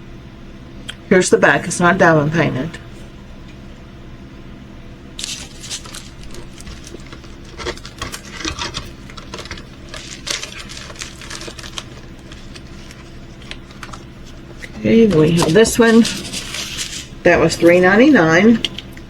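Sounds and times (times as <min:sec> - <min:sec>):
steady low hum: 0:00.0 - 0:19.0
plastic packaging rustling: 0:05.2 - 0:19.0.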